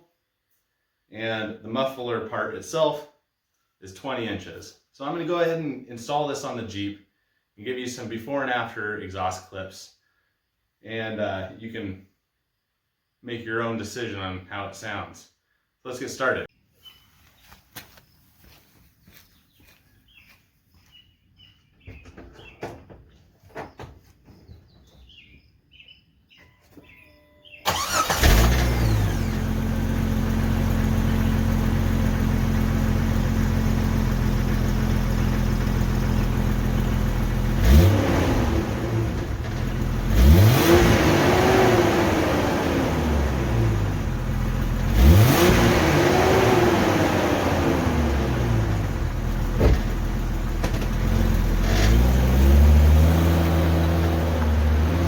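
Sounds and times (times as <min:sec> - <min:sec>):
car engine starting: 0:27.6 - 0:55.0
car engine idling: 0:27.7 - 0:55.0
car engine revving: 0:27.7 - 0:55.0.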